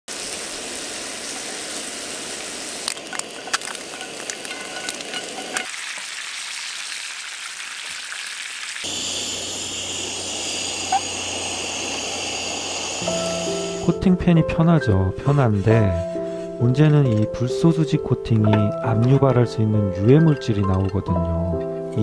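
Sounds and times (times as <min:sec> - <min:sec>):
food sizzling in frying pan: 0:00.1 - 0:14.0.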